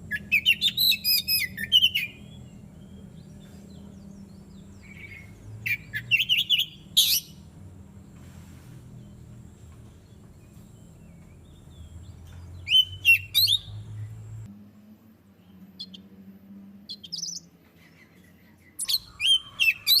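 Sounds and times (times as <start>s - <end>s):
bird whistling song: 0.0s - 7.5s, 10.1s - 14.3s, 16.9s - 20.0s
soft bird chirps: 0.0s - 14.5s, 15.4s - 20.0s
low steady hum: 0.0s - 19.6s.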